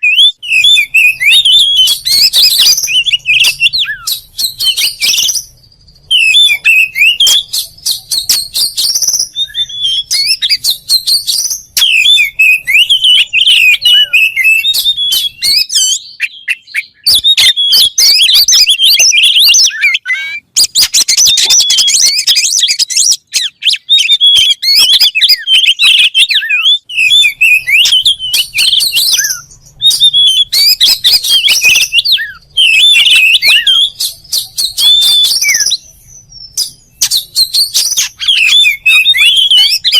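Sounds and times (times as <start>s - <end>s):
songbird whistling and chirping: 0.0s - 39.9s.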